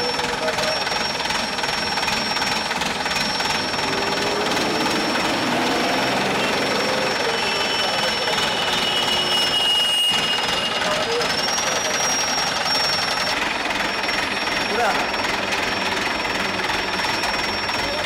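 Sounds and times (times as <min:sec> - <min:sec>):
workshop machinery noise: 0:00.0 - 0:18.0
lower whine: 0:03.2 - 0:07.4.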